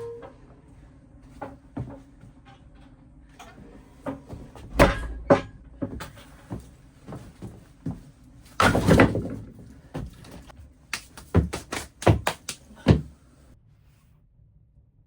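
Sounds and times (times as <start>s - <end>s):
knocks and thumps of handling: 3.4s - 13.2s.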